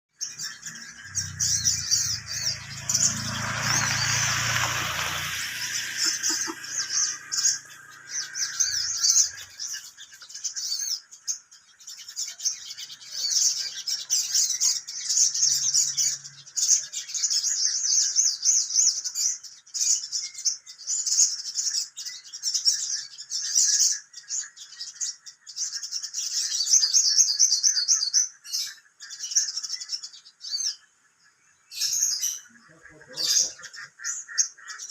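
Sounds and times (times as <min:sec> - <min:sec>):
bird chirping and trilling: 0:00.1 - 0:34.9
rushing noise with low hum: 0:01.5 - 0:08.1.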